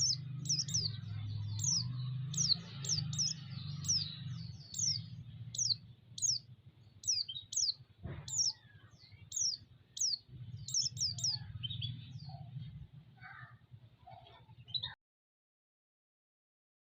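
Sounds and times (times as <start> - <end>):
bird chirping high: 0.0 - 12.6.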